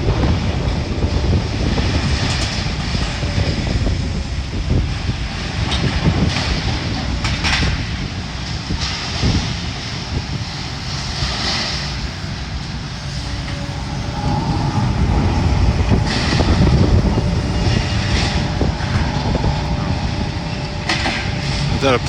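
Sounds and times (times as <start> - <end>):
loader engine rumbling under load: 0.0 - 22.0.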